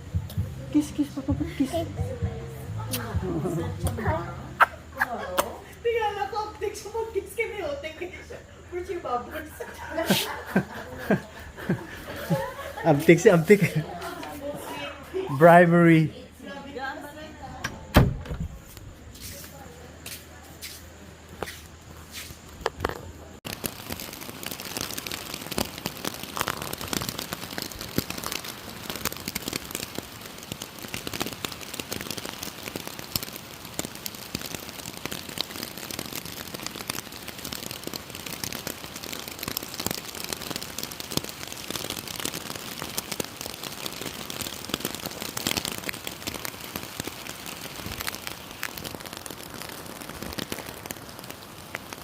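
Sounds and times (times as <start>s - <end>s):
rain drops crackling on surface: 0.0s - 17.6s, 21.1s - 52.0s.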